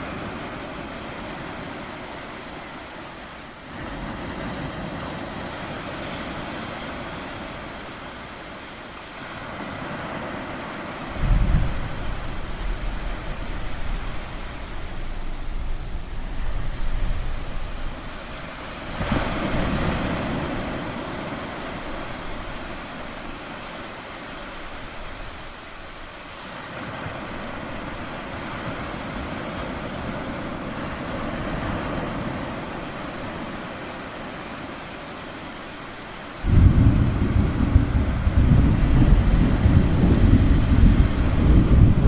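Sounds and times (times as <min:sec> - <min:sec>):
ocean waves on shore: 0:00.0 - 0:42.0
low thunder rumble: 0:11.1 - 0:19.6, 0:36.5 - 0:42.0.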